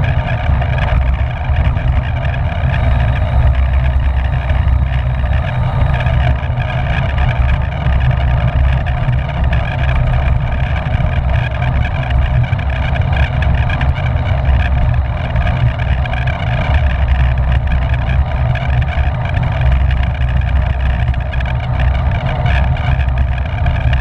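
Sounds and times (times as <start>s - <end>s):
wind rumble on microphone: 0.0s - 24.0s.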